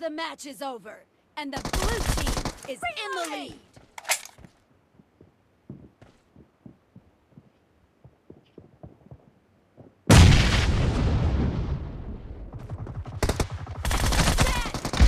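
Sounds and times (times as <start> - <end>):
automatic gunfire: 1.6 - 2.7, 12.6 - 15.0.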